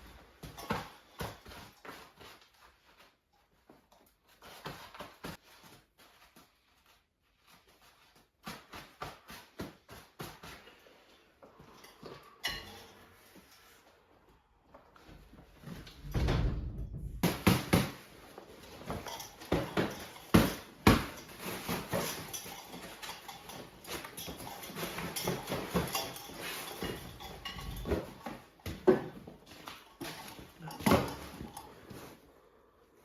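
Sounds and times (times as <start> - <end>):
objects knocking and clattering: 15.0 - 32.2
heavy thump: 16.0 - 17.9.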